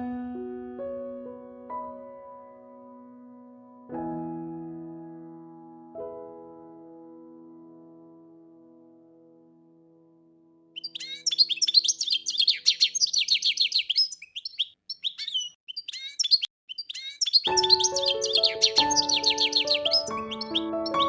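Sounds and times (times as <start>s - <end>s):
piano music: 0.0s - 11.5s, 17.4s - 21.0s
songbird chirping: 10.8s - 21.0s.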